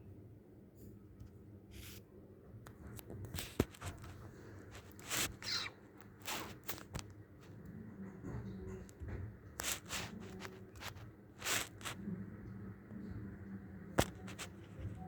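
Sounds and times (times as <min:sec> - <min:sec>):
faint low murmur: 0:00.0 - 0:15.0
rustling or scuffing noises: 0:03.3 - 0:07.0, 0:09.6 - 0:12.0.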